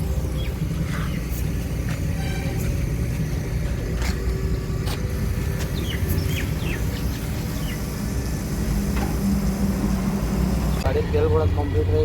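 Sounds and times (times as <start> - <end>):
vehicle engine idling: 0.0 - 12.0
bird chirps: 5.7 - 7.9.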